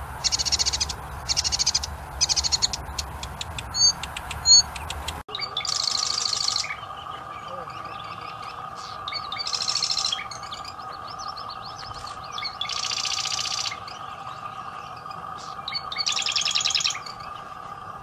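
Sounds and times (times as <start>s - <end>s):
birds chirping softly: 0.0s - 18.0s
songbird trilling: 0.2s - 17.8s
mid-pitched drone: 5.3s - 18.0s.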